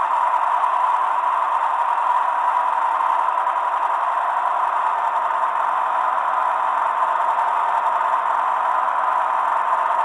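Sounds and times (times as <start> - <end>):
model locomotive engine sound: 0.0 - 10.0.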